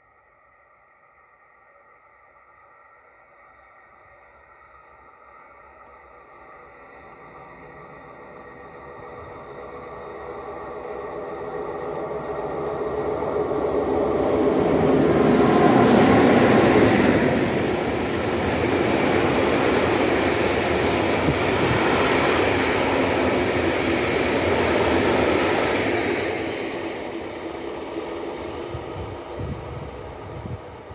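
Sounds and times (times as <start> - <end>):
freight train wheels rumbling on rails: 6.9 - 30.9.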